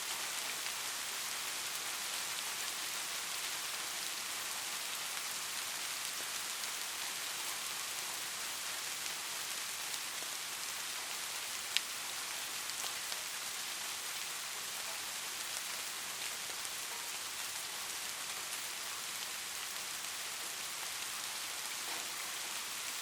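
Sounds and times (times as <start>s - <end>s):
light rain falling: 0.0s - 23.0s.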